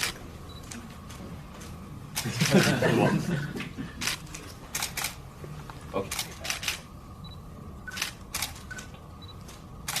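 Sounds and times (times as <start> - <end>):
low room hum: 0.0 - 10.0
camera shutters clicking: 4.0 - 5.2, 6.1 - 6.8, 7.9 - 10.0.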